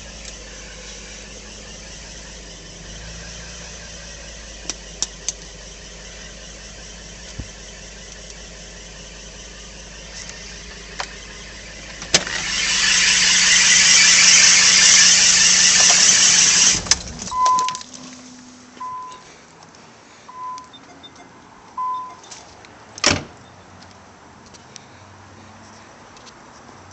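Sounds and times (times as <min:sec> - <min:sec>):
car engine running: 0:00.0 - 0:19.2
high hissing squeal: 0:11.2 - 0:16.8
short electronic beeps: 0:17.3 - 0:18.0, 0:18.8 - 0:19.3, 0:20.3 - 0:22.3.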